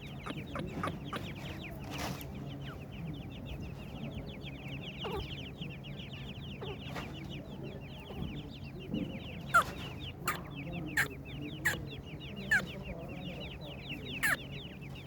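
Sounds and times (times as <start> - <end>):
chicks peeping: 0.0 - 15.0
loud sharp bird notes: 9.3 - 15.0.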